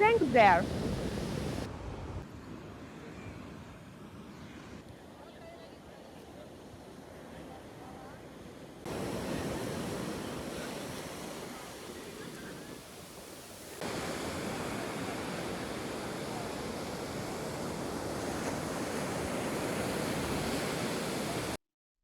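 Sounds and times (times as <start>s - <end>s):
ocean surf washing on beach: 6.5s - 21.6s.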